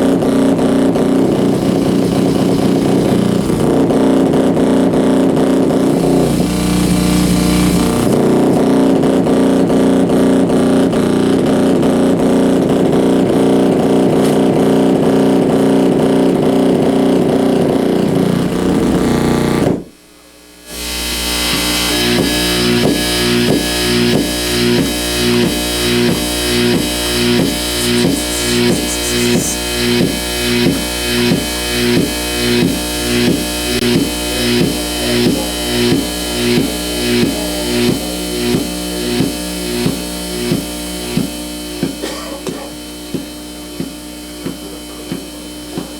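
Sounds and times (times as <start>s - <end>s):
rhythmic electrical pulsing: 0.0s - 9.0s, 20.6s - 45.9s
distorted electrical buzz drone: 0.0s - 45.9s.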